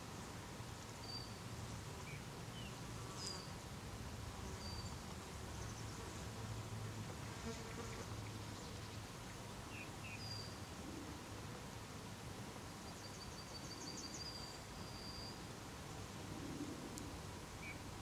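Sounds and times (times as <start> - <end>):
songbirds chirping: 0.0 - 6.1, 7.5 - 11.3, 12.6 - 15.5, 17.0 - 18.0.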